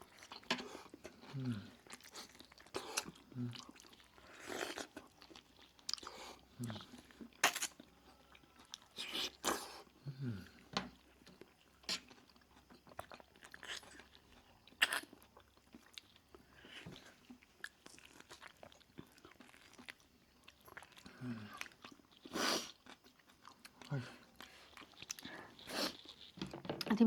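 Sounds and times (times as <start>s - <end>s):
person crunching and chewing: 0.1s - 9.8s, 11.4s - 27.0s.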